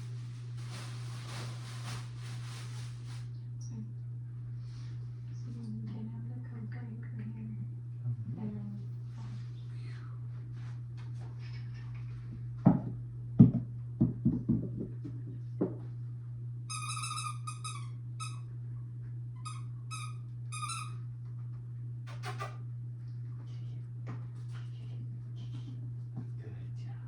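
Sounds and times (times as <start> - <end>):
steady low hum: 0.0 - 27.0
short high-pitched squeaks: 16.7 - 18.4.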